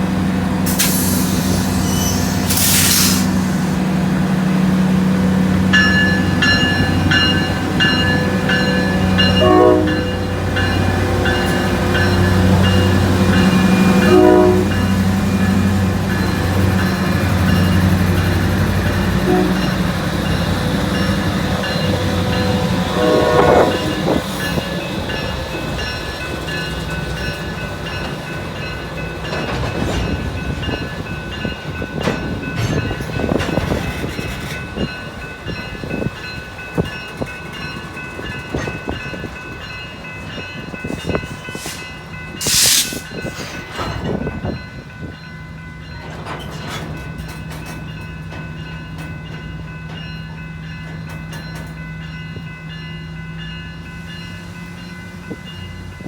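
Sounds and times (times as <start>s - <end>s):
short sharp hiss: 0.7s - 3.5s, 41.6s - 43.1s
high squeal: 0.8s - 3.8s.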